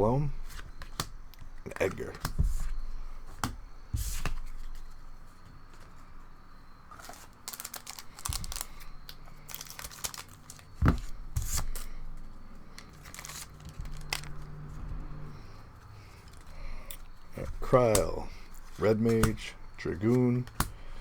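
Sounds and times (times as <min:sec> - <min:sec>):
cards being handled: 0:00.2 - 0:06.2, 0:06.8 - 0:21.0
foil wrapper tearing and crinkling: 0:07.0 - 0:11.9, 0:12.8 - 0:14.5.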